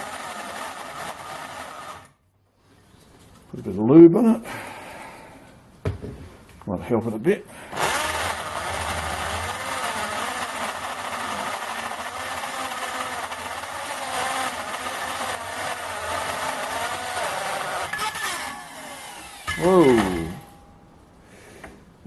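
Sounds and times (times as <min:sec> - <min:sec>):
electric drill whining: 0:07.7 - 0:20.5
drill bit grinding metal: 0:07.8 - 0:20.6.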